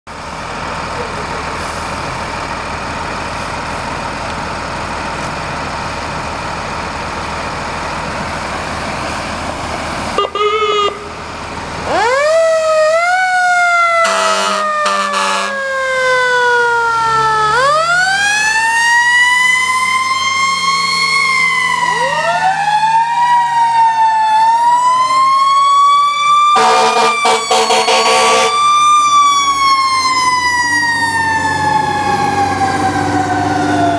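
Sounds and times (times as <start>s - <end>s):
fire truck engines running: 0.1s - 33.9s
sirens wailing: 0.1s - 33.9s
horn blasts: 10.2s - 11.1s, 14.0s - 15.6s, 26.5s - 28.6s
siren yelp: 10.2s - 11.2s, 11.8s - 33.9s.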